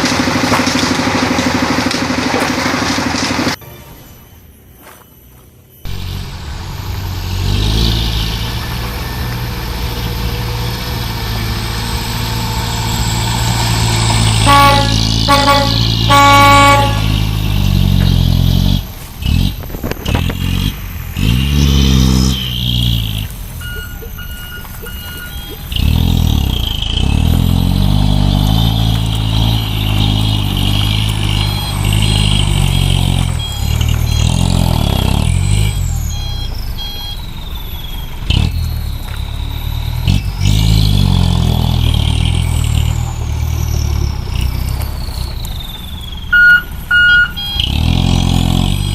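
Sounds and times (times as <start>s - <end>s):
truck engine labouring: 0.0s - 4.7s, 5.8s - 48.9s
vehicle horn honking: 3.6s - 4.4s, 14.2s - 17.3s.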